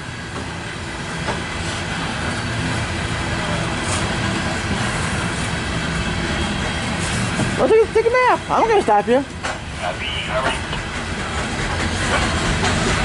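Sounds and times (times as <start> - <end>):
train wheels on rail: 0.0 - 13.0.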